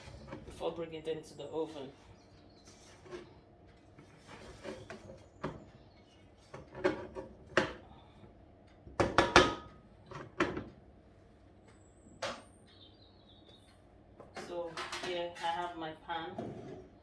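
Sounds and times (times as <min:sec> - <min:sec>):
kitchen knocks and bangs: 0:09.0 - 0:09.7.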